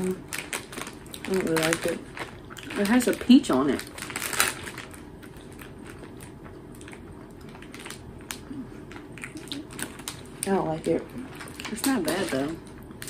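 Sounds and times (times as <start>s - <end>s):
potato chips crunching: 0.0s - 13.0s
person chewing: 2.3s - 2.7s, 5.2s - 10.4s.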